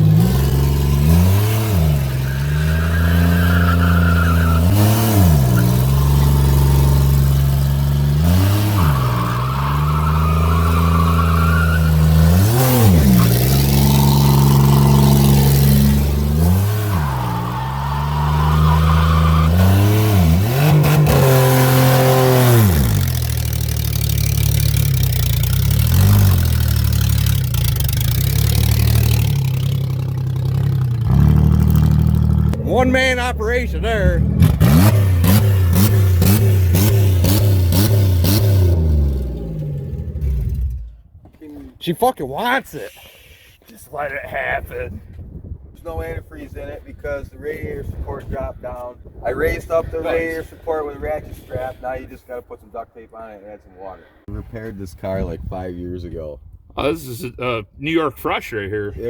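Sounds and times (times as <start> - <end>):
car engine idling and revving: 0.0 - 41.2.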